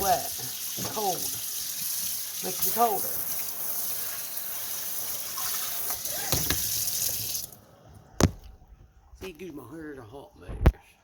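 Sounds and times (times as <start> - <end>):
tap running into sink: 0.4 - 1.4, 5.8 - 7.2.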